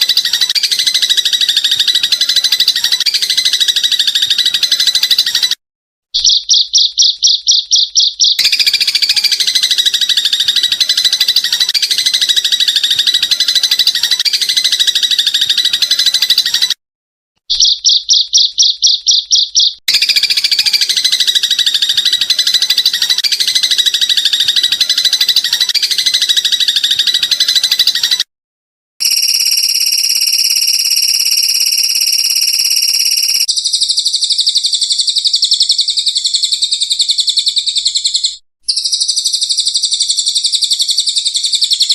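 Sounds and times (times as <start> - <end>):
dense chirping trill: 0.0 - 5.6, 6.2 - 16.8, 17.5 - 28.2, 29.0 - 41.9
rapid pulsed bird call: 0.0 - 5.6, 6.2 - 16.8, 17.5 - 28.3.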